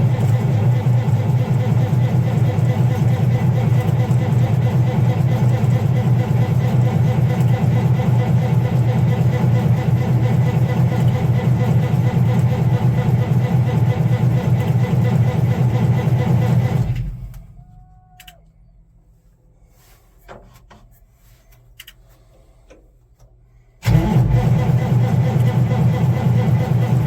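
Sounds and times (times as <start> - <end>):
diesel engine cranking: 0.0 - 17.6, 23.8 - 27.0.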